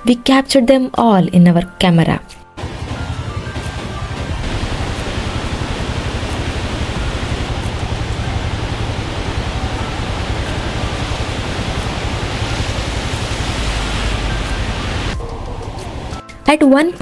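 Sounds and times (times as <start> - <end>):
waterfall roaring: 2.6 - 16.2.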